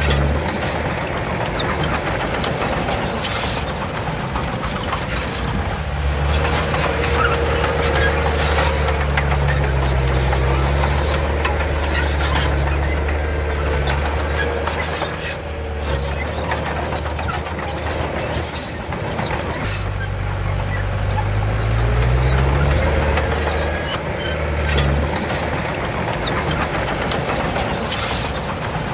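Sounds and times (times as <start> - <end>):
bulldozer diesel engine under load: 0.0 - 28.9
steel tracks squealing and clanking: 0.0 - 28.9.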